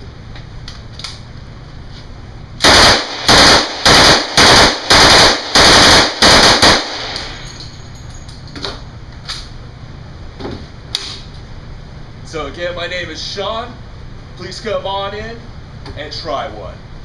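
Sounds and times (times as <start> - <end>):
submachine gun firing bursts: 2.6 - 7.3.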